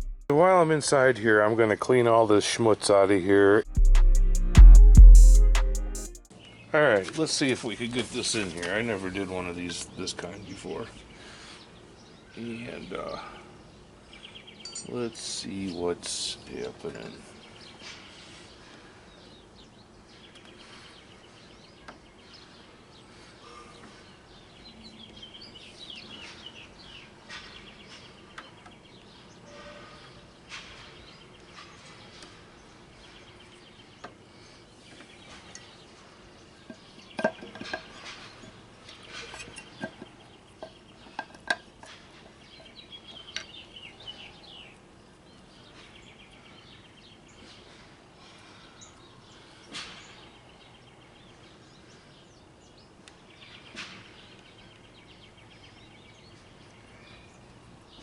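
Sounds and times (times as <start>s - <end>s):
birds chirping: 6.2s - 58.0s
metallic clinks of tools: 14.6s - 15.0s.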